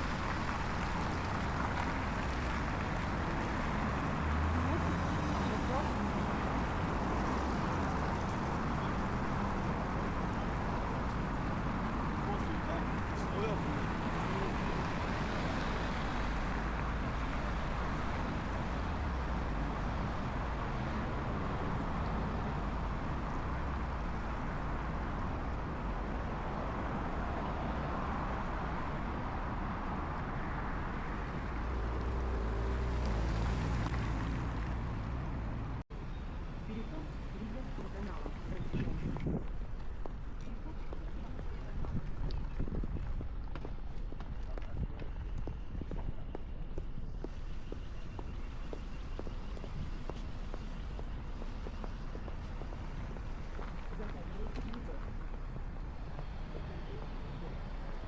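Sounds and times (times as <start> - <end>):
low traffic rumble: 0.0 - 58.0
low engine hum: 28.2 - 35.9.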